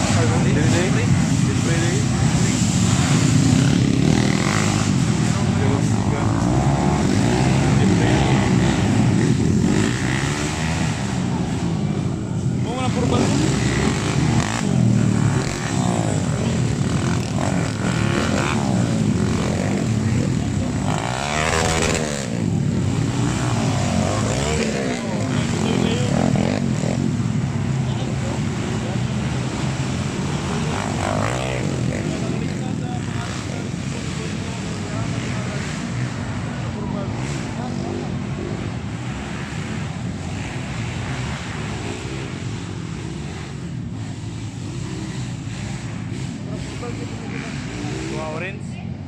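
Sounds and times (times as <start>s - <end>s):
motorcycle engines revving: 0.0s - 49.0s.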